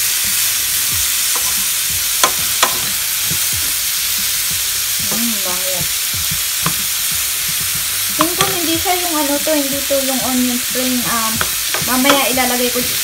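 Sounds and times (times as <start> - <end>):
leeks sizzling in frying pan: 0.0 - 13.0
spoon knocking against pan: 1.0 - 3.6, 5.0 - 9.9, 11.0 - 12.8.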